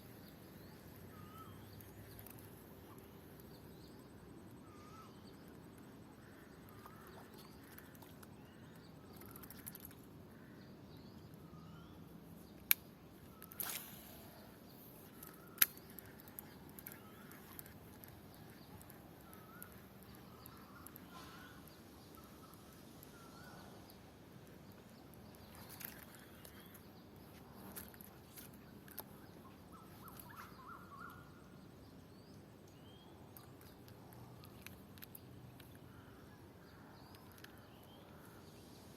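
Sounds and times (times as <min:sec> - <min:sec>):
small birds chirping: 0:00.0 - 0:38.9
brief rustle: 0:13.3 - 0:14.2.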